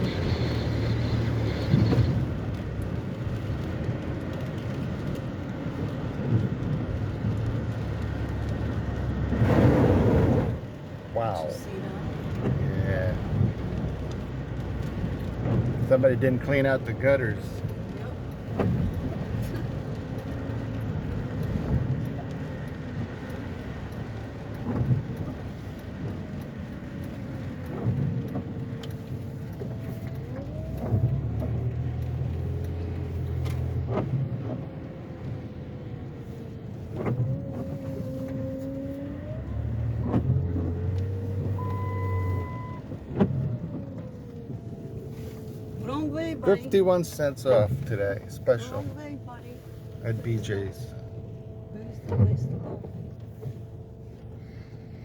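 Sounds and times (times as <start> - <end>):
car engine rising and falling: 0.0 - 55.0
road rumble: 0.0 - 55.0
brief beep: 41.6 - 42.8.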